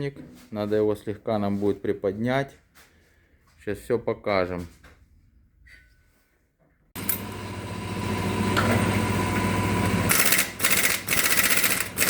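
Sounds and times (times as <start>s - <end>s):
electric pump motor whining: 7.0s - 12.0s
fast mechanical rattle: 10.1s - 12.0s.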